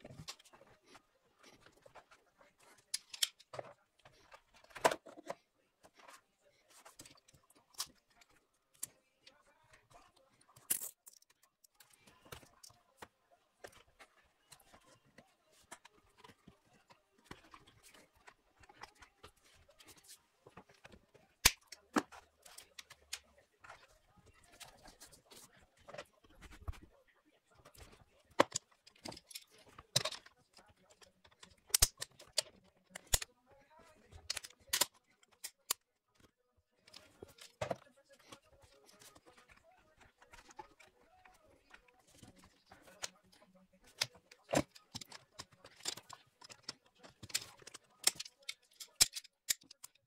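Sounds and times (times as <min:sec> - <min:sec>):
hand tools clicking on metal parts: 0:43.9 - 0:50.0.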